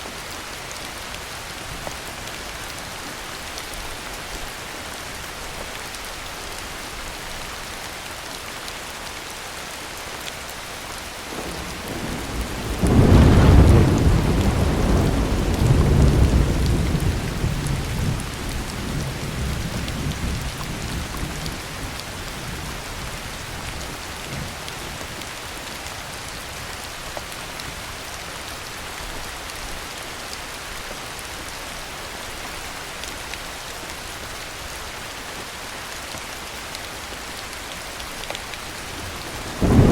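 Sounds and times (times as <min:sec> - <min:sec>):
heavy rain: 0:00.0 - 0:39.9
thunderclap rumbling: 0:11.3 - 0:21.4, 0:39.0 - 0:39.9.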